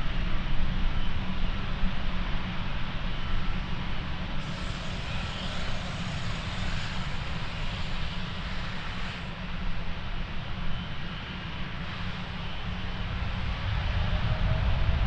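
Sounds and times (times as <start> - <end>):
jet engines rumbling: 0.3 - 15.0
jet engine hiss: 4.4 - 9.7, 11.3 - 15.0.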